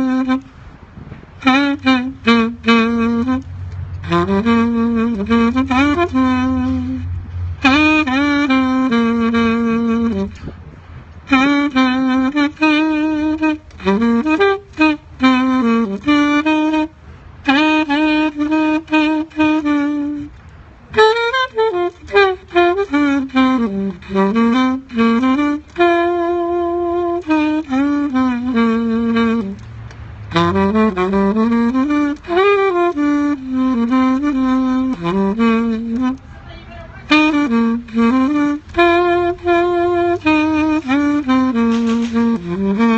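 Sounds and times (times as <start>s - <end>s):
saxophone playing hymn melody: 0.0s - 42.9s.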